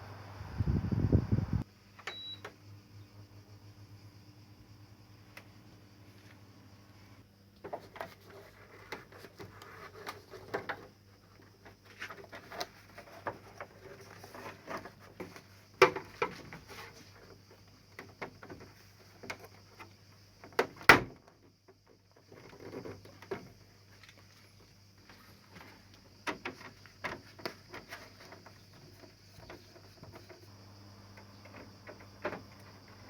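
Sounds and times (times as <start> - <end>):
objects being handled: 22.2 - 30.5.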